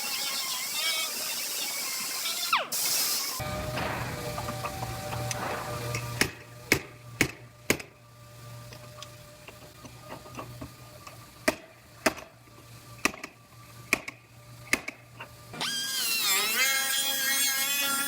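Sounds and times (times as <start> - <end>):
sharp knocks: 3.4 - 6.9
low steady hum: 3.4 - 15.6.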